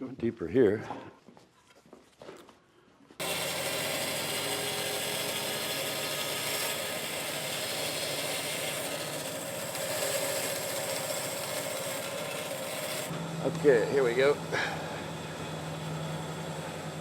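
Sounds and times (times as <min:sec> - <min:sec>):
power tool running: 0:03.2 - 0:17.0.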